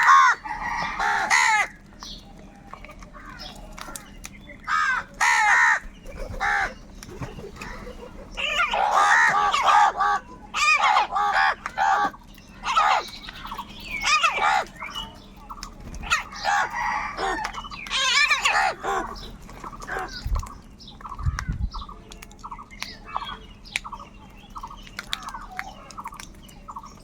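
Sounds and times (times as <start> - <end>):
crows cawing: 0.0 - 1.9, 4.6 - 6.8, 7.6 - 14.8, 16.0 - 20.2.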